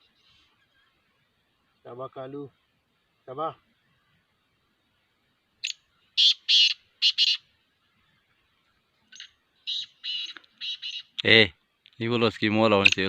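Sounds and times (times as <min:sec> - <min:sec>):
francolin calling harsh notes: 0:06.2 - 0:07.5, 0:09.2 - 0:11.2.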